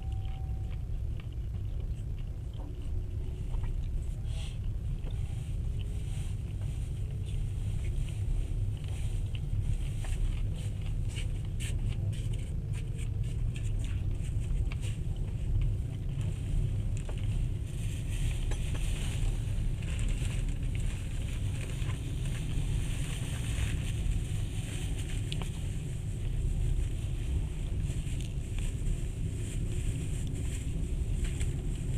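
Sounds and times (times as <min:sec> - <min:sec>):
wheels rumbling on rails: 0:00.0 - 0:31.9.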